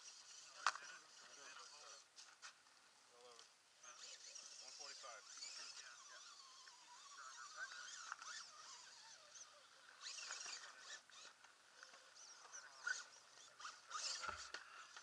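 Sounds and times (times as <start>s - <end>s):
faint bird chirps and calls: 12.0s - 14.2s.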